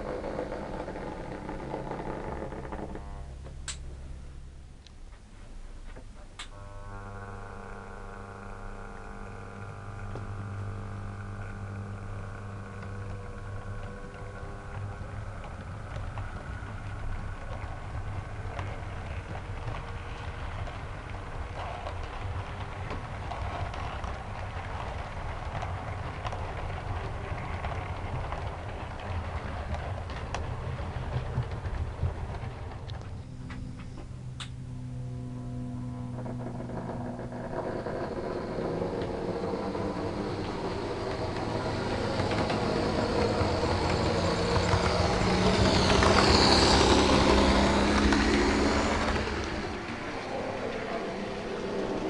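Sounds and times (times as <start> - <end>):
model train wheels clicking on rail joints: 0.0 - 3.9, 7.1 - 34.5, 36.2 - 52.0
model train humming: 6.4 - 52.0.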